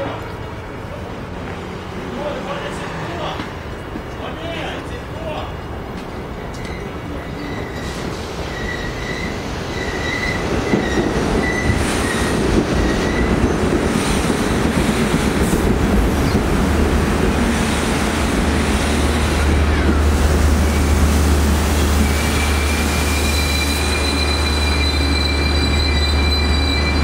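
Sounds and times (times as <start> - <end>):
rumble of wheels on rail: 0.0 - 27.0
train wheels squealing: 6.5 - 13.6, 21.9 - 27.0.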